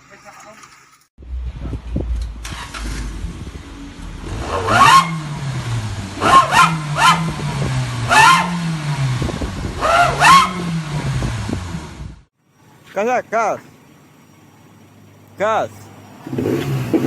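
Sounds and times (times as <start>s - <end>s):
vehicle engine idling and revving: 1.2s - 12.9s, 13.6s - 17.0s
howling exhaust whistle: 9.8s - 10.8s.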